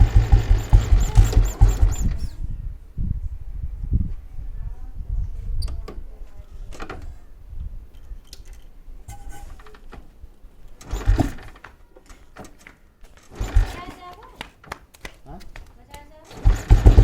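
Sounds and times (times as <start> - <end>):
motorcycle engine thumping: 0.0 - 2.3, 16.4 - 17.0.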